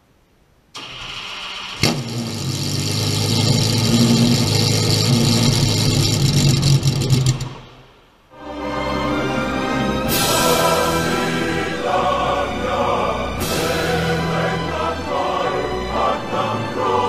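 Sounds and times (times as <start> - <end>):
car starter whirr: 0.7 - 7.8
car engine catching and running: 1.8 - 7.8.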